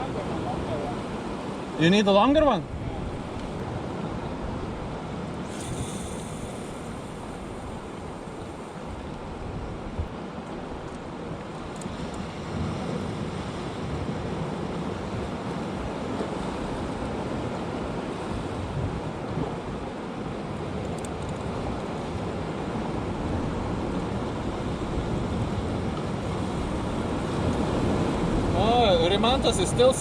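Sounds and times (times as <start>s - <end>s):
sea surf rushing: 0.0s - 10.4s, 22.2s - 30.0s
wind on microphone: 12.0s - 30.0s.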